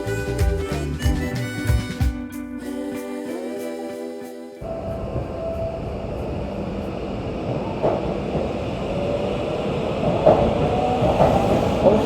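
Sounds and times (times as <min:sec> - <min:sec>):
train rumble inside carriage: 0:04.7 - 0:12.0.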